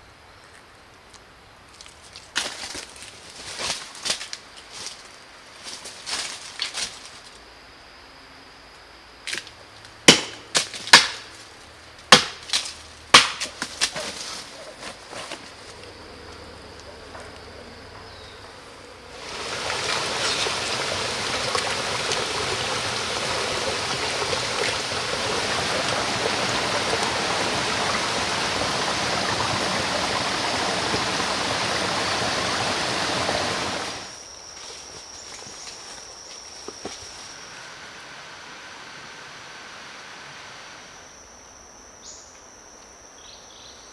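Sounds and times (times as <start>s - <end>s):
running water rushing: 18.8s - 34.2s, 37.0s - 40.9s.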